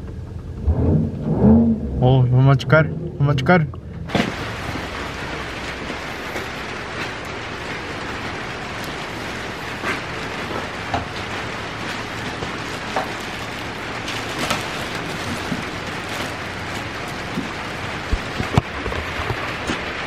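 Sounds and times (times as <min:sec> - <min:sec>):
heavy rain falling: 0:04.1 - 0:20.0.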